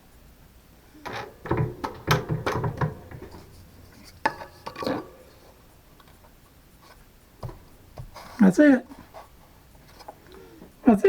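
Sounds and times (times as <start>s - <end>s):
hard parts knocking together: 1.0s - 6.2s.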